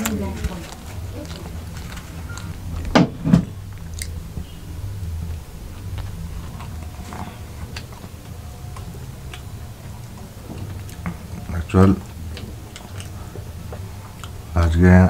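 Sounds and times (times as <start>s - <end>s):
chewing and mouth clicks: 0.0s - 3.0s, 3.7s - 4.6s, 5.3s - 14.6s
low steady hum: 0.0s - 15.0s
sharp knocks: 2.9s - 3.7s.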